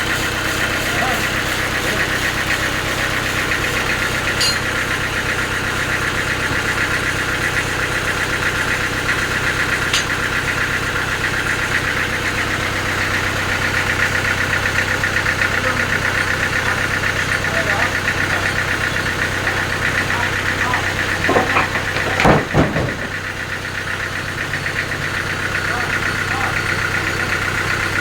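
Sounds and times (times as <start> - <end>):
engine driving a saw: 0.0 - 28.0
sawmill machinery running: 0.0 - 28.0.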